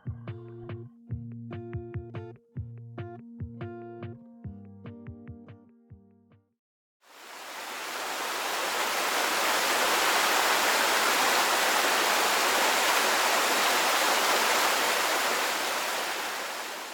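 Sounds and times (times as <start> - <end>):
steady rushing hiss: 7.1 - 16.9.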